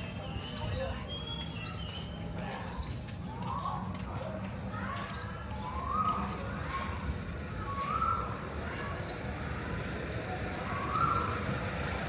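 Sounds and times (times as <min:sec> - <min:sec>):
bird calling rising notes: 0:05.6 - 0:12.0.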